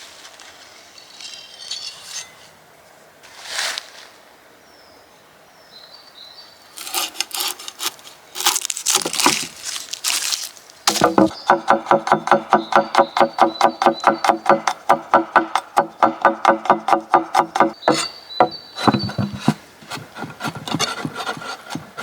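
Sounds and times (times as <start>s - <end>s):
utensils knocking and scraping: 6.8s - 9.5s, 10.9s - 22.0s
rustling: 6.8s - 11.4s.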